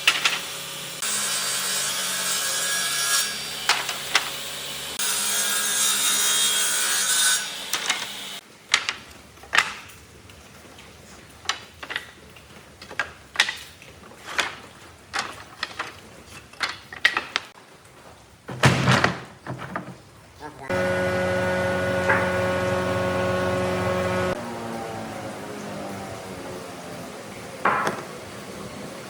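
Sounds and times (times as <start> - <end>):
tools and wood knocking: 0.0 - 0.5, 3.7 - 4.4, 11.5 - 17.6, 18.5 - 20.1, 27.7 - 28.1
woodworking machine humming: 20.7 - 27.8.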